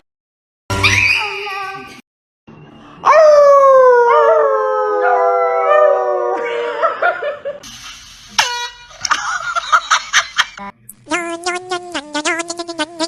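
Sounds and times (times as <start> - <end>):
dog howling: 3.0 - 6.7.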